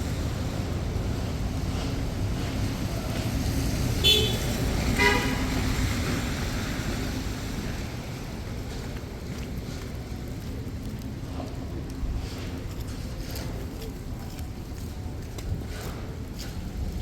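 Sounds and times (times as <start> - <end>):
traffic rumble: 0.0 - 17.0
car horn honks: 4.0 - 5.5.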